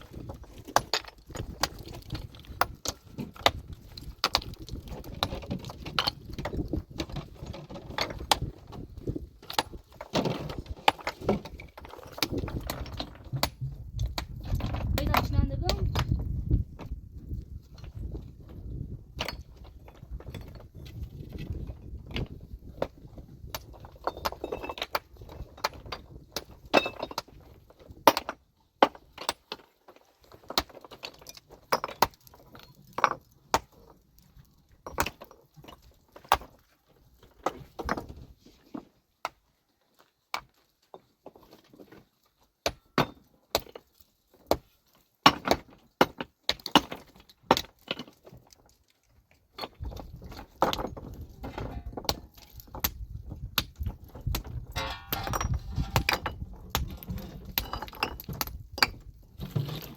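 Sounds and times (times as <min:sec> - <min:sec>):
metal tools striking rock: 0:54.8 - 0:57.0.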